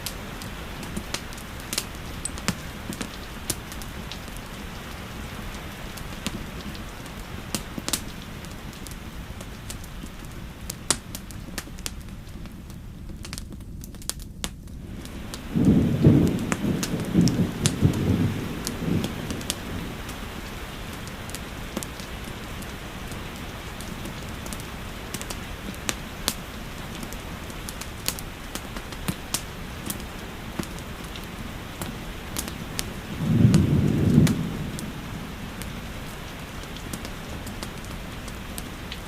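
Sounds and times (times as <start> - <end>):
fireplace crackling: 0.0 - 39.0
steady rain falling: 0.0 - 39.0
low thunder roll: 15.1 - 20.5, 32.7 - 37.6.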